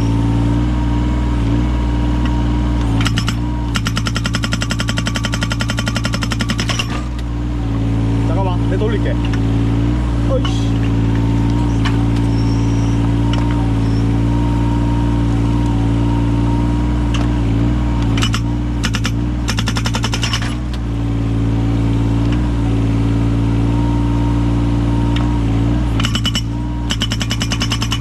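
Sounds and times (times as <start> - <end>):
diesel engine running: 0.0 - 28.0
hydraulic breaker hammering: 2.9 - 7.2, 18.0 - 20.8, 26.0 - 28.0.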